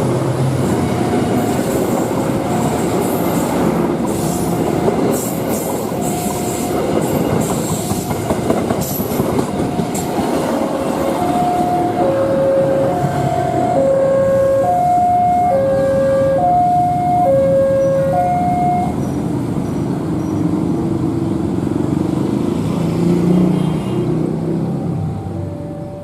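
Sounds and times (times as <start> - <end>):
train rumbling: 0.0 - 23.4
two-tone warning signal: 11.0 - 19.0.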